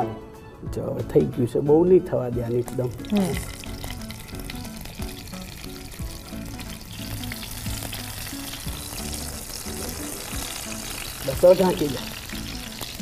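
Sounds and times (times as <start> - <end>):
background music: 0.0 - 13.0
vegetables sizzling in a pan: 2.7 - 13.0.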